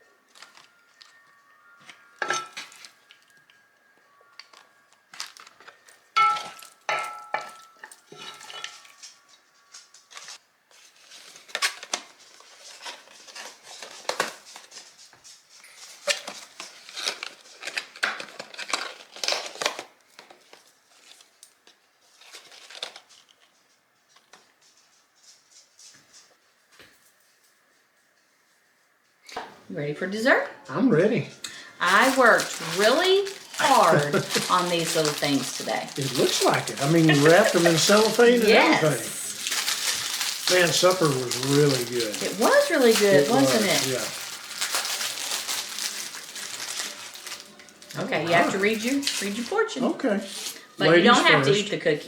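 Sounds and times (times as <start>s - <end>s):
cutlery clinking on plates: 2.2s - 2.9s, 6.2s - 9.2s.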